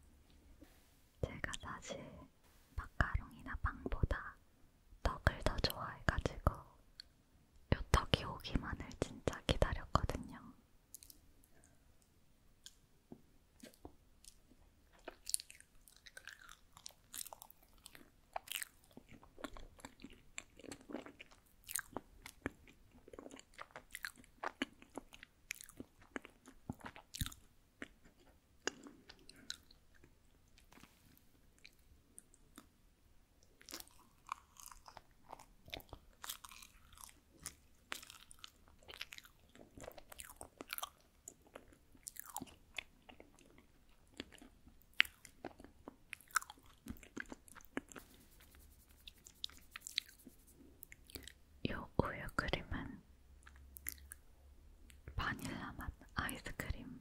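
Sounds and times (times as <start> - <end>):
chewing soft rice cake: 13.6 - 32.8, 33.4 - 51.5, 53.4 - 55.0.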